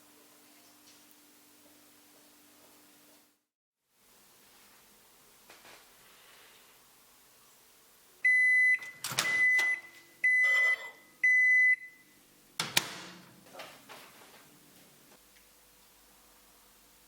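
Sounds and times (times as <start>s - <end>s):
appliance beeps: 8.2s - 12.2s.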